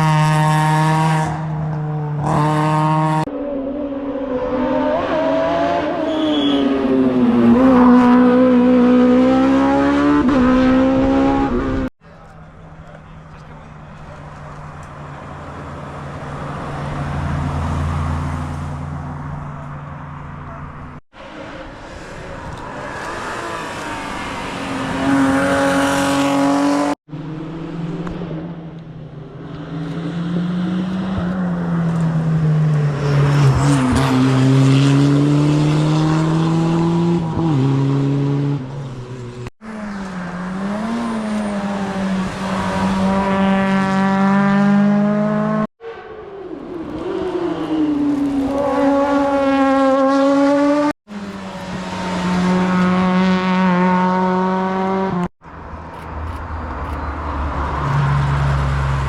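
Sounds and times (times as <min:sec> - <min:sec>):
rally car engine revving: 0:00.0 - 0:03.3, 0:06.8 - 0:11.9, 0:21.2 - 0:28.7, 0:29.6 - 0:45.7, 0:46.6 - 0:55.3.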